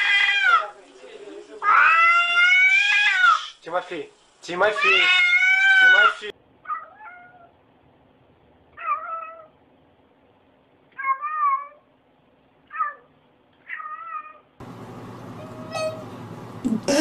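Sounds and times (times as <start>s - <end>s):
cat meowing: 0.0s - 0.7s, 1.6s - 3.5s, 4.7s - 7.5s, 8.7s - 9.5s, 10.9s - 11.9s, 12.7s - 14.5s, 15.4s - 16.1s
steady background hiss: 0.0s - 6.6s.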